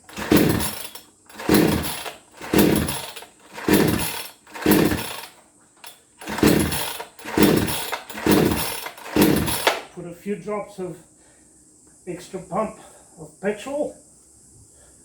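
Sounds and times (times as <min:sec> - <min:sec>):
chainsaw recoil starter pulls: 0:00.0 - 0:10.0.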